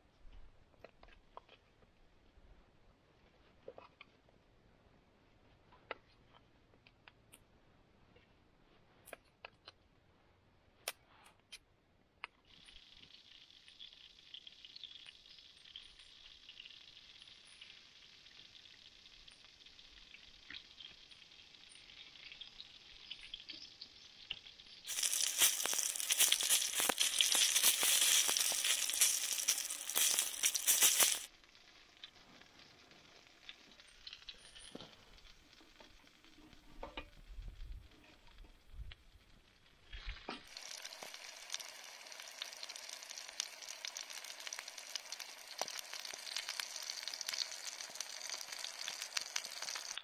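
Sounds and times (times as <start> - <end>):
food sizzling in a pan: 12.5 - 37.1, 39.8 - 50.0.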